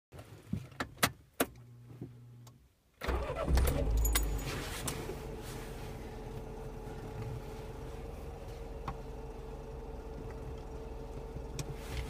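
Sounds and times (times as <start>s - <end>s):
car engine starting and idling: 2.9s - 12.0s
keys clicking and jangling: 3.8s - 4.6s.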